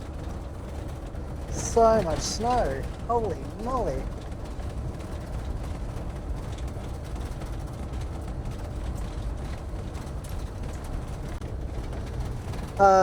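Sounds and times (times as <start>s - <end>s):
engine and road noise rumble: 0.0s - 13.0s.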